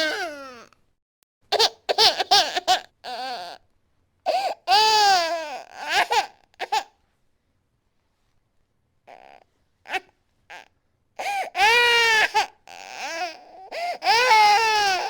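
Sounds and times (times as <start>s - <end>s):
baby crying: 0.0s - 0.7s, 1.6s - 3.6s, 4.3s - 6.9s, 9.1s - 15.0s.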